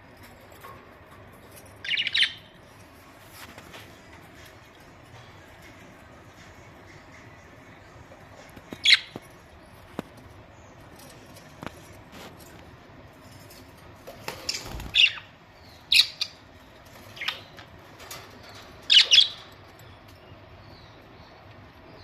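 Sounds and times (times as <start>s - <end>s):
budgerigars chirping and squawking: 1.8s - 2.5s, 6.3s - 9.3s, 14.3s - 21.0s.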